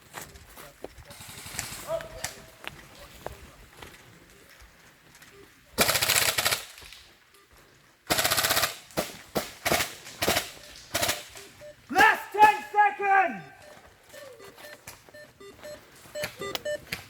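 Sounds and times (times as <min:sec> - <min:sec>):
airsoft guns firing: 0:05.8 - 0:06.9, 0:08.1 - 0:12.8.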